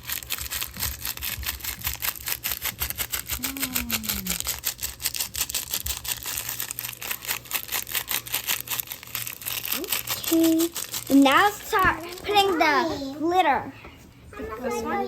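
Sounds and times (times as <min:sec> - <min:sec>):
slime clicking and crackling: 0:00.0 - 0:12.8
child humming: 0:03.3 - 0:04.5.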